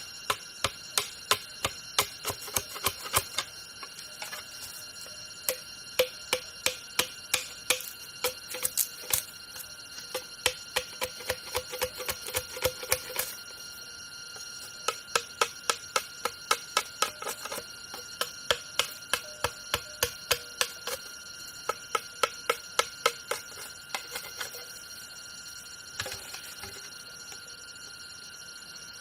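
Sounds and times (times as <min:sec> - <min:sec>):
sharp rhythmic knocks: 0:00.0 - 0:03.5, 0:05.4 - 0:09.2, 0:14.8 - 0:21.0, 0:21.6 - 0:24.6
steady high-pitched drone: 0:00.0 - 0:29.0.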